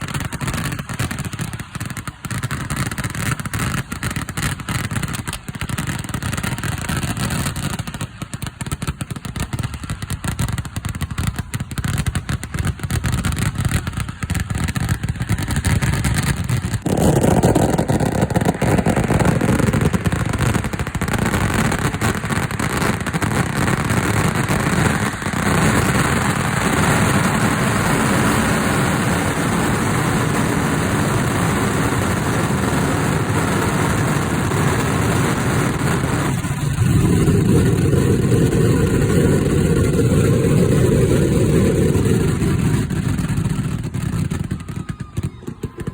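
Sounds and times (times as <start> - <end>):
firecracker blasts: 0.0 - 45.9.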